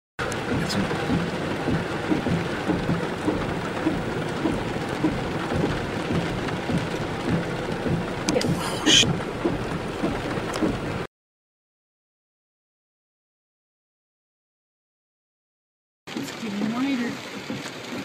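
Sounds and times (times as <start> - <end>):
heavy rain hissing: 0.2 - 11.1.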